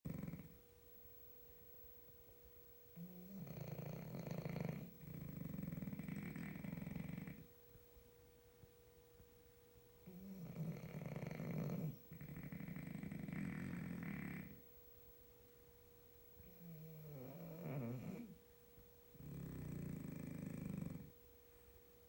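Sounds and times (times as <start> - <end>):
dog snoring: 0.1 - 0.6, 2.9 - 7.5, 10.0 - 14.6, 16.4 - 18.4, 19.1 - 21.2.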